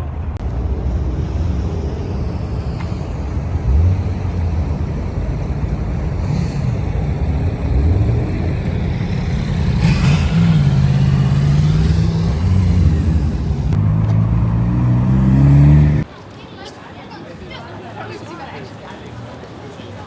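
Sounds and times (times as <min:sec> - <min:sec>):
car engine revving: 0:00.3 - 0:16.1.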